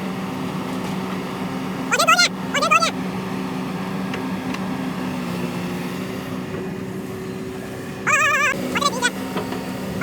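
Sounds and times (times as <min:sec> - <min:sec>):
engine humming: 0:00.0 - 0:10.0
high-pitched animal call: 0:08.1 - 0:09.2.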